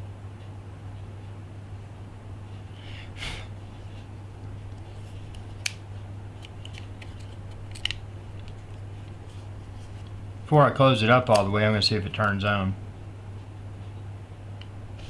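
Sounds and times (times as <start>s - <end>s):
steady low hum: 0.0s - 15.0s
small tools clicking and tapping: 6.4s - 8.8s.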